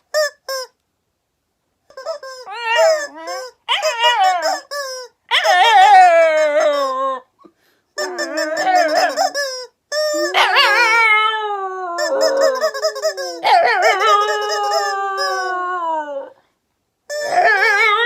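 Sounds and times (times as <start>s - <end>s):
squeaky toy squeaking: 0.0s - 0.8s, 1.9s - 6.9s, 8.0s - 11.3s, 12.0s - 15.8s, 17.1s - 18.0s
dog howling: 2.5s - 4.7s, 5.3s - 7.3s, 8.0s - 9.4s, 10.1s - 16.4s, 17.2s - 18.0s.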